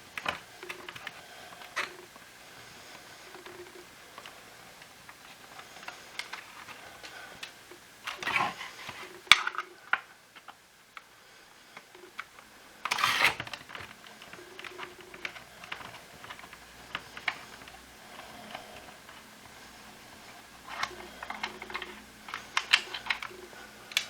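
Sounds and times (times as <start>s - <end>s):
plastic parts clicking and knocking: 0.1s - 2.2s, 3.3s - 11.1s, 11.8s - 19.6s, 20.6s - 24.0s
plastic scraping rustles: 2.9s - 10.6s, 11.8s - 24.0s.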